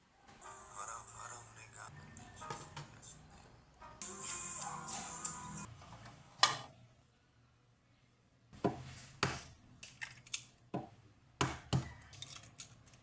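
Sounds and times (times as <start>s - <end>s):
objects being handled clicking: 9.8s - 10.6s, 11.9s - 13.0s.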